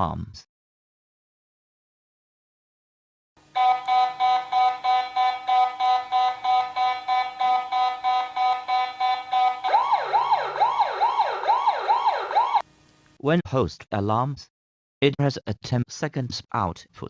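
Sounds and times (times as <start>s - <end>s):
electronic alarm beeping: 3.6s - 12.6s
wailing siren tone: 3.6s - 12.6s.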